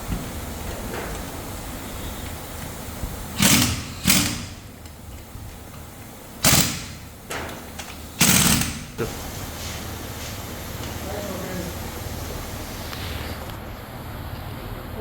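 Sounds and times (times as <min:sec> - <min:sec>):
steady machinery hum: 0:00.0 - 0:15.0
short sharp hissing bursts: 0:01.4 - 0:04.7.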